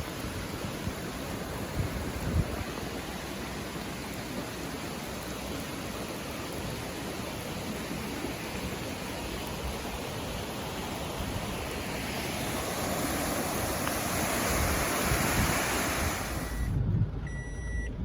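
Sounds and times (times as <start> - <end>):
floodwater rushing: 0.0 - 16.7
short high beep: 16.4 - 17.9.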